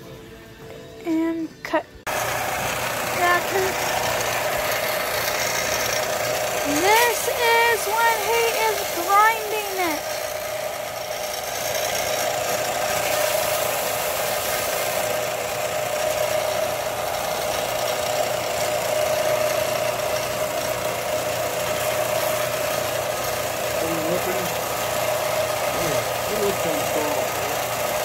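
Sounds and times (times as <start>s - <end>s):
power grinder grinding a knife: 2.1s - 28.0s.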